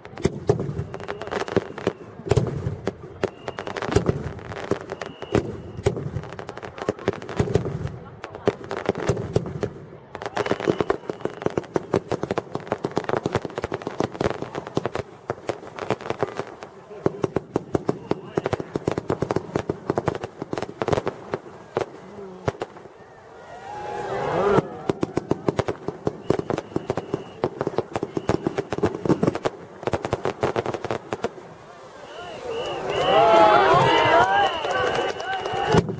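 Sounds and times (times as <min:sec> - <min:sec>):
fireworks crackling: 0:00.0 - 0:35.9.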